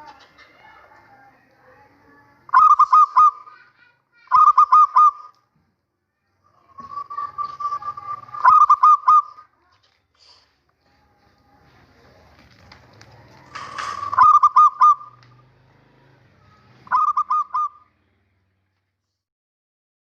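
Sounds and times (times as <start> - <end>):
dove cooing: 2.5 - 5.4, 6.5 - 9.5, 13.0 - 15.3, 16.4 - 17.9.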